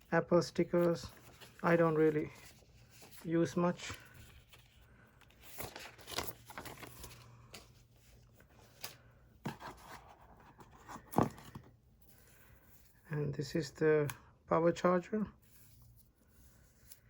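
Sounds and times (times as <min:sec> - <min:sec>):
cardboard packaging rustling: 0:00.6 - 0:13.0.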